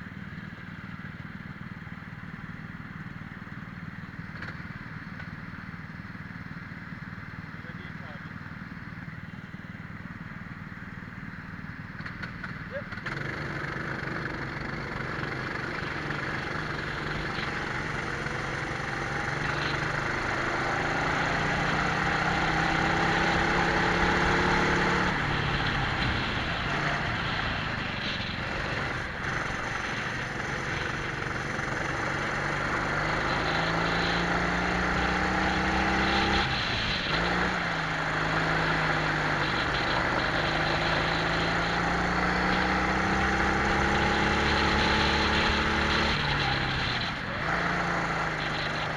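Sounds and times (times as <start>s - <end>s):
wind and road noise: 8.8s - 48.9s
kart engines revving: 11.9s - 48.9s.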